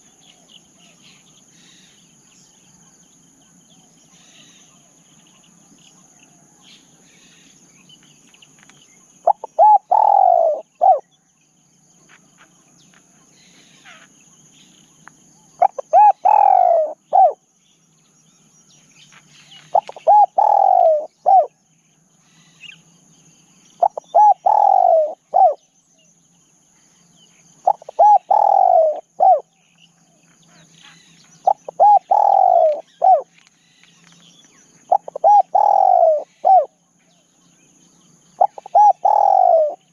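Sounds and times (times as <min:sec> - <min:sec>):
high insect buzz: 0:06.8 - 0:39.9
dove cooing: 0:09.2 - 0:11.2, 0:15.6 - 0:17.4, 0:19.4 - 0:21.6, 0:23.8 - 0:25.7, 0:27.6 - 0:33.4, 0:34.8 - 0:37.2, 0:38.3 - 0:39.9.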